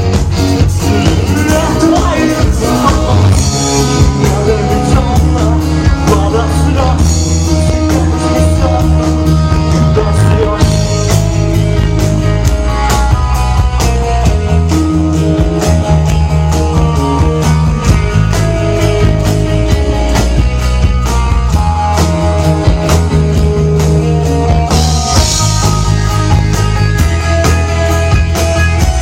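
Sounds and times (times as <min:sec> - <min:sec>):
drum beat: 0:00.0 - 0:29.0
rock band playing: 0:00.0 - 0:29.0
person singing: 0:00.6 - 0:11.2.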